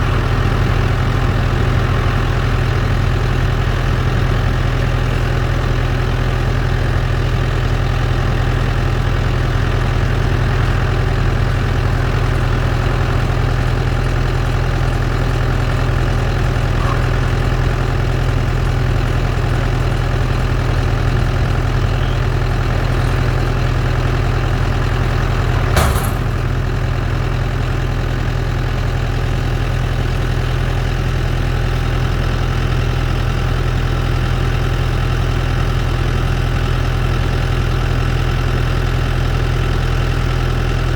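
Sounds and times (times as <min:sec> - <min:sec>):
tractor diesel engine running: 0:00.0 - 0:40.9
sharp clack: 0:25.6 - 0:26.6.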